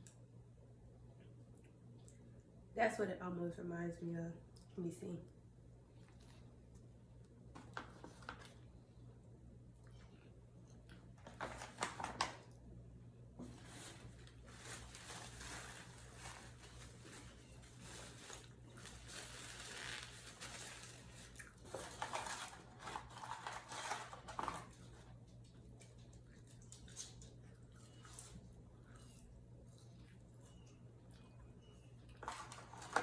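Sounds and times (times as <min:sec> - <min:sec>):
paper wrapper crinkling: 0:13.5 - 0:25.0.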